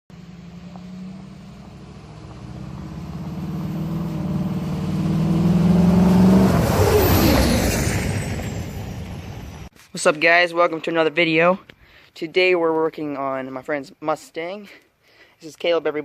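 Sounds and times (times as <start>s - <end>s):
loud car engine exhaust: 0.1s - 9.7s.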